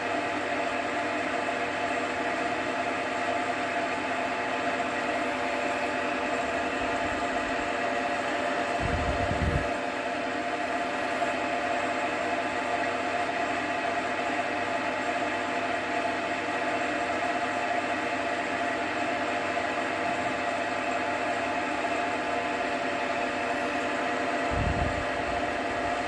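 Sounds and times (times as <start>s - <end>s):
gear whine: 24.5s - 26.0s.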